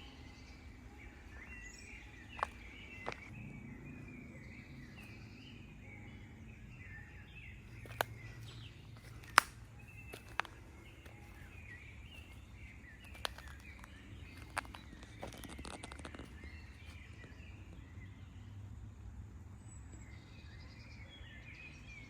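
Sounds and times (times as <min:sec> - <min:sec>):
low outdoor rumble: 0:00.0 - 0:20.8
birds chirping: 0:00.0 - 0:22.0
sharp clicks: 0:09.0 - 0:10.5.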